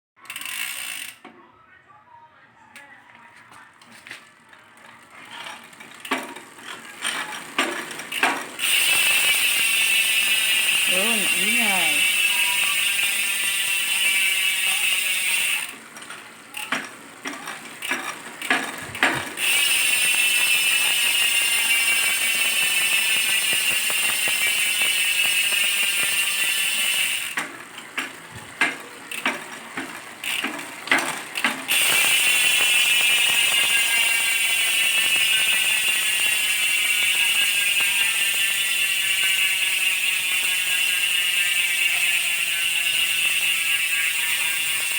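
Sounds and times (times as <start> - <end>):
bicycle hub ratchet buzz: 0.2 - 1.2, 4.9 - 44.9.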